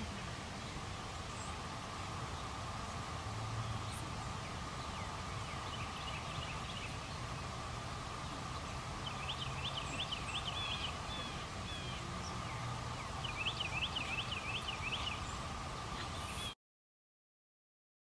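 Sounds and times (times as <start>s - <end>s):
songbird singing high notes: 9.0s - 15.4s.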